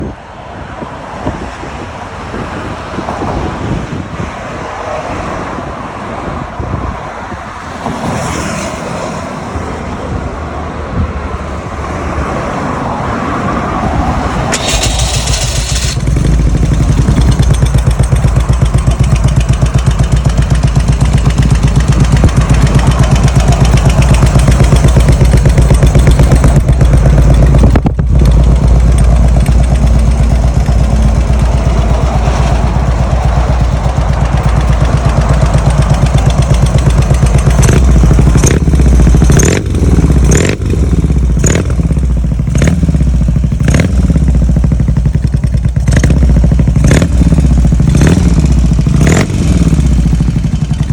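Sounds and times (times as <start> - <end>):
motorcycle engine running: 14.2 - 50.9
sharp exhaust cracks: 14.3 - 50.9.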